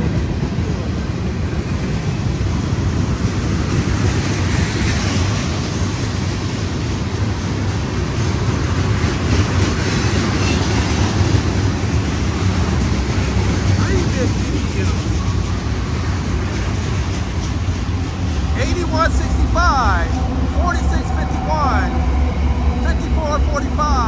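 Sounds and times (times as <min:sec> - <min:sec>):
freight train cars rolling past: 0:00.0 - 0:24.0.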